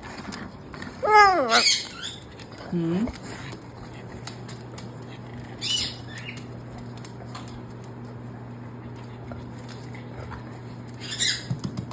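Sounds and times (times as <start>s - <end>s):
steady low hum: 0.0s - 11.9s
cockatoo squawking: 1.1s - 2.2s.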